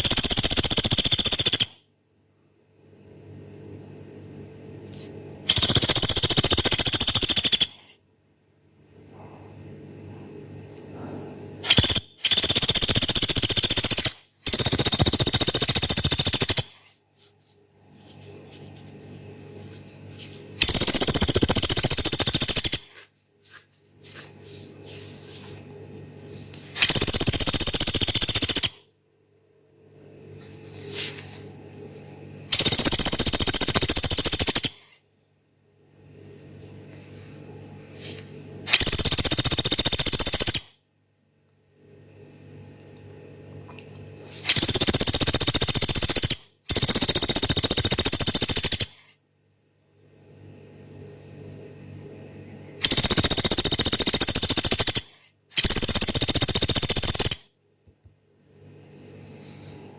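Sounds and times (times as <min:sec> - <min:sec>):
woodpecker rattling calls: 0:00.0 - 0:01.8, 0:05.5 - 0:07.8, 0:11.7 - 0:16.8, 0:20.6 - 0:23.0, 0:26.8 - 0:28.8, 0:32.6 - 0:34.8, 0:38.7 - 0:40.7, 0:44.5 - 0:49.0, 0:52.8 - 0:57.4
faint low hum: 0:00.0 - 0:59.9.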